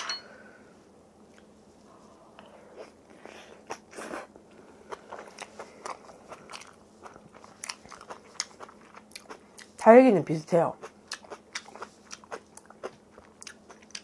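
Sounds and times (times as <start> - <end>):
person chewing crunchy food: 2.7 - 9.8, 10.8 - 14.0.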